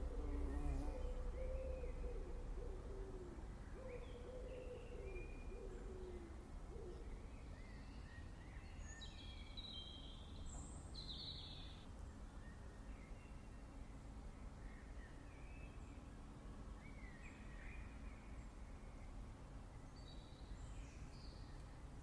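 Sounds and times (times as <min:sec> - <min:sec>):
bird cooing: 0:00.0 - 0:07.1.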